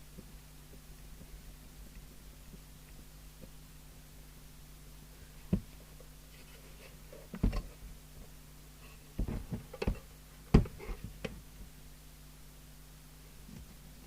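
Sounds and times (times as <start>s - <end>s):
low steady hum: 0.0s - 14.0s
knocks and clatters of metal case: 7.4s - 7.8s, 9.2s - 11.2s.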